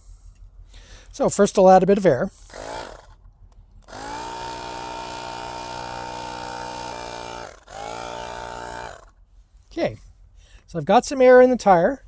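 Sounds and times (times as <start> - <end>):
electric tire pump motor whining: 2.4 - 3.2, 3.8 - 9.1.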